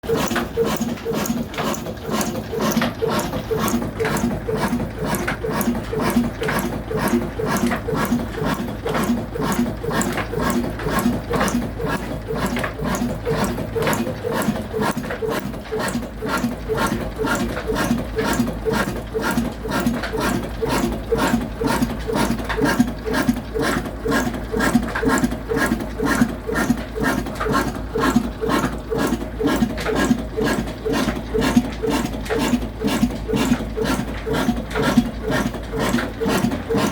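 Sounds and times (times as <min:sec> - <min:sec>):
diesel engine running steadily: 0:00.0 - 0:36.9.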